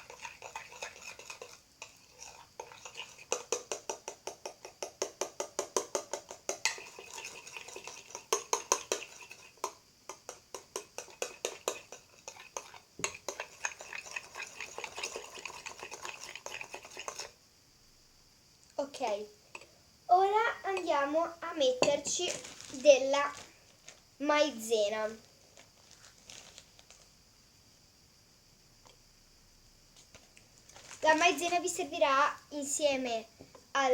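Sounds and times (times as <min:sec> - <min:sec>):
utensil stirring in a bowl: 0:00.0 - 0:17.4.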